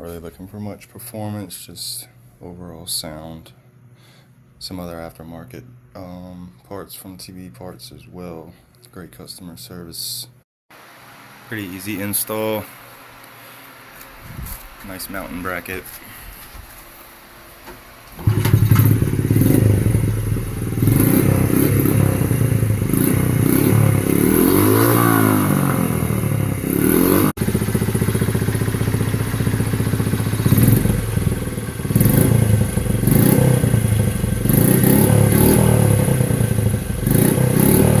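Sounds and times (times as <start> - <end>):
small motorcycle engine revving: 18.1 - 38.0.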